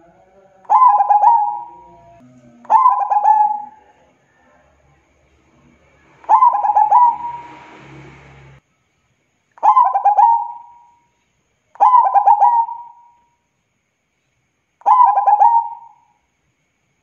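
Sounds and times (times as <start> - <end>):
dove cooing: 0.0 - 4.0, 6.2 - 7.6, 9.6 - 10.8, 11.8 - 13.0, 14.8 - 16.0.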